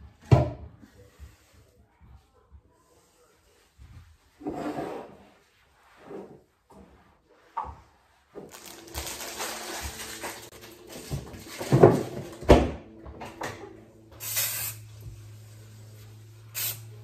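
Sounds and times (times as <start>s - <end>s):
objects handled and set down: 8.3s - 13.6s
short hiss: 14.2s - 14.8s, 16.6s - 16.9s.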